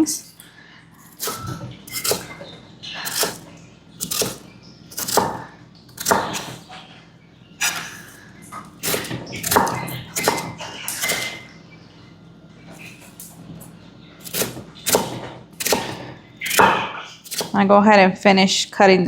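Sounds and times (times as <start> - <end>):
knife cutting potato on board: 1.1 - 2.4, 3.0 - 6.7, 8.8 - 11.4, 14.2 - 17.6.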